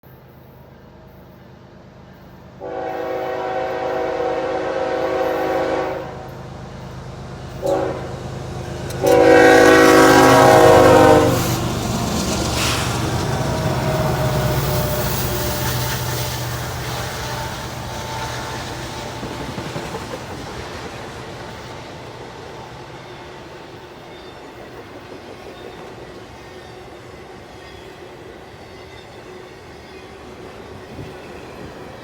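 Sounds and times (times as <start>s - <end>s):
train cars rumbling past: 0.0s - 32.0s
locomotive air horn chord: 2.6s - 6.4s, 7.5s - 11.7s.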